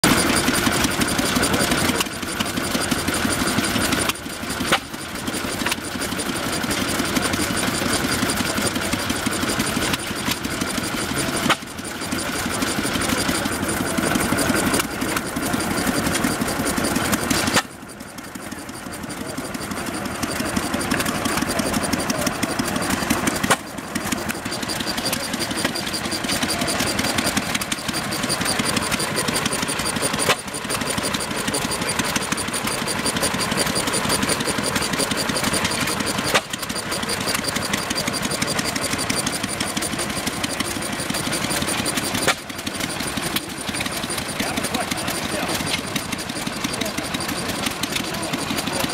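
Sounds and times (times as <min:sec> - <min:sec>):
engine mechanical clatter: 0:00.0 - 0:48.9.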